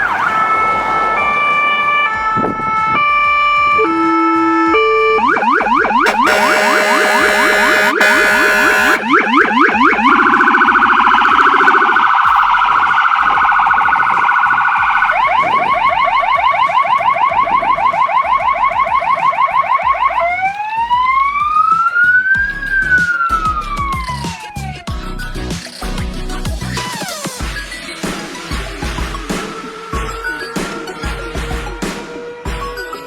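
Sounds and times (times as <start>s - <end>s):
low siren tone: 0.0s - 24.2s
fire engine electronic siren: 0.0s - 24.9s.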